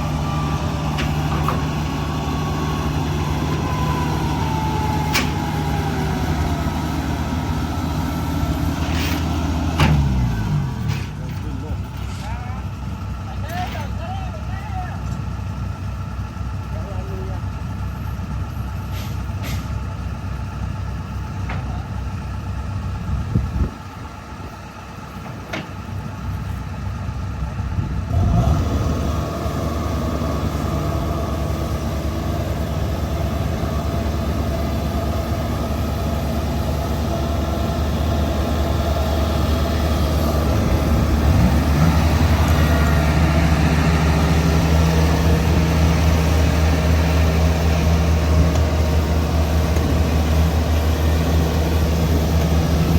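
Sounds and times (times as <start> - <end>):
closer louder engine: 0.0 - 18.8, 26.0 - 52.9
combine harvester engines running: 0.0 - 52.9.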